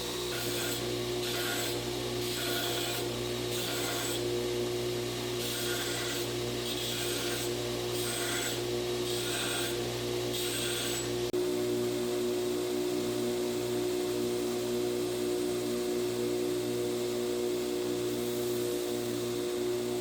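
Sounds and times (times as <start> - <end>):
steel rasping on grinder: 0.0 - 4.4, 5.2 - 11.2
grinder motor humming: 0.0 - 20.0.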